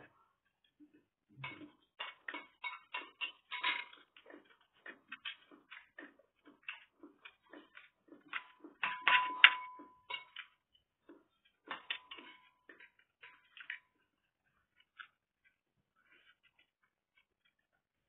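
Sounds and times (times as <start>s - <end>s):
metal spoon scraping a bowl: 11.7s - 13.9s.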